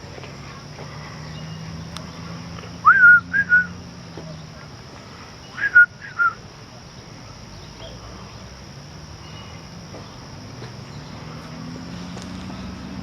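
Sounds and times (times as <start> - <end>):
faint outdoor background: 0.0 - 13.0
person whistling short notes: 2.9 - 3.7, 5.6 - 6.4.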